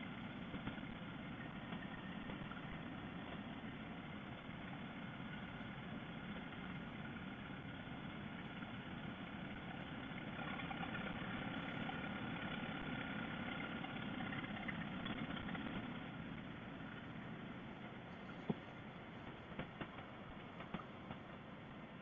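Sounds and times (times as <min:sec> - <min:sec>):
motorcycle engine and road noise: 0:06.8 - 0:21.2.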